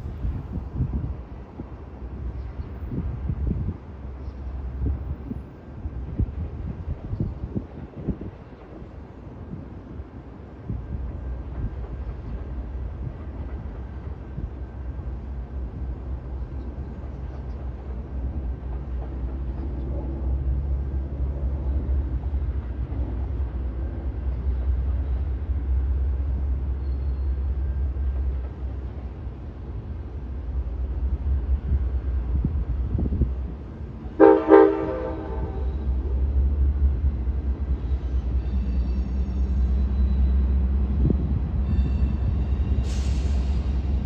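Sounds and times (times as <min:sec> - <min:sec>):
train rumbling: 0:00.0 - 0:44.0
train horn blast: 0:34.1 - 0:36.2.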